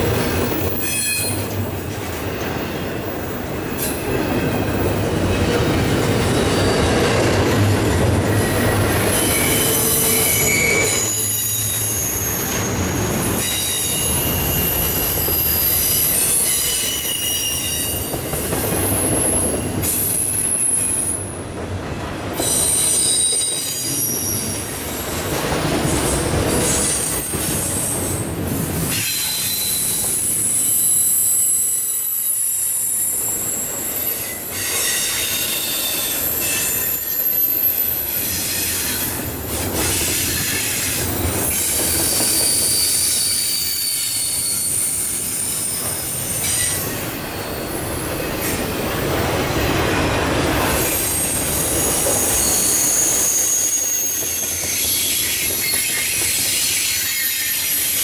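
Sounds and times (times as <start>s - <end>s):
steel wheels rumbling on rail: 0.0s - 58.0s
high-pitched wheel squeal: 0.2s - 1.6s, 7.8s - 18.2s, 28.9s - 39.3s, 40.0s - 47.8s, 50.8s - 58.0s.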